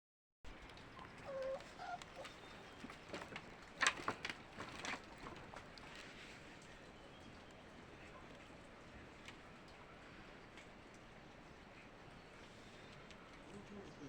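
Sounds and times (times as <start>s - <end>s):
puppy whimpering and squeaking: 1.0s - 2.5s.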